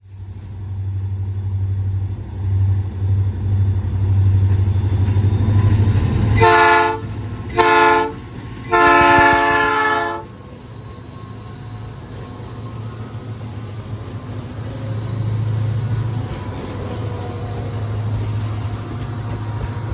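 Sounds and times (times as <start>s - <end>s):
diesel locomotive engines droning: 0.0s - 19.9s
locomotive air horn blasts: 6.4s - 10.3s.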